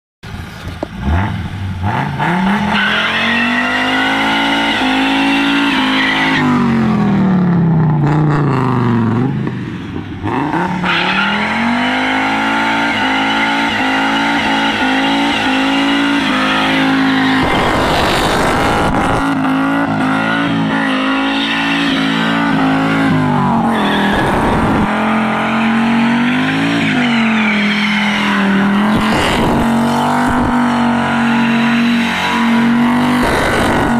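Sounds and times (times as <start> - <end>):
car engine revving high: 1.0 - 9.5, 10.2 - 33.9
tyres screeching: 2.6 - 6.7, 10.5 - 33.9
loud rushes of noise: 10.2 - 33.9.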